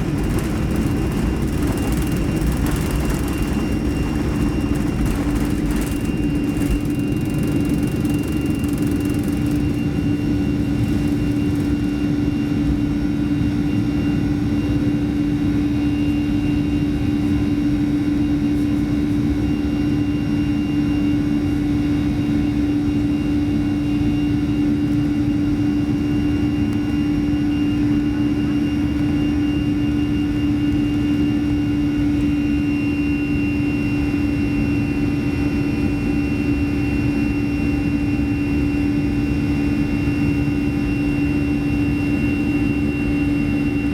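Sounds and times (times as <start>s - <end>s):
jet engine cabin hum: 0.0s - 14.0s.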